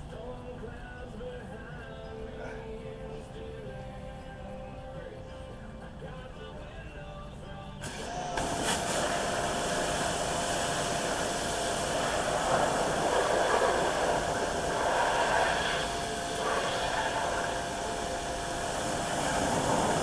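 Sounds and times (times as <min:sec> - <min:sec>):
steady hissing rush: 0:07.8 - 0:20.0.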